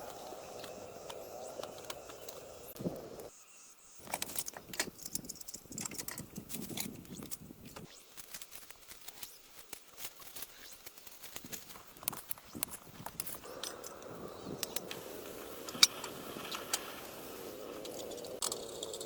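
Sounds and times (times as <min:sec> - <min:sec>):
rustling: 0:05.5 - 0:13.9.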